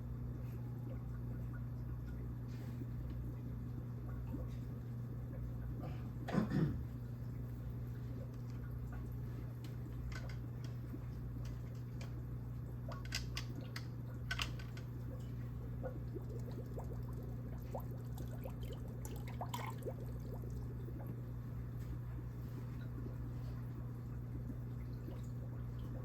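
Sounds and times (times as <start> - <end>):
aquarium pump hum: 0.0 - 26.0
water trickling and dripping: 7.2 - 26.0.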